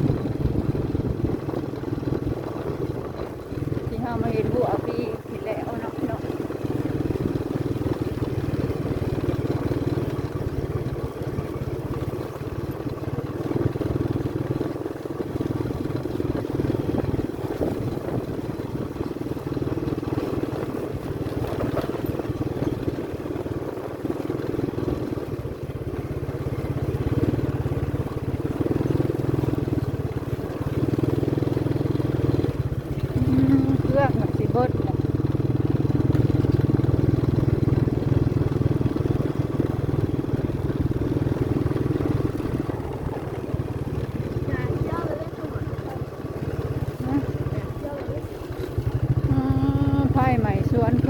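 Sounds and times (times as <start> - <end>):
small motorcycle engine running: 0.0 - 51.0.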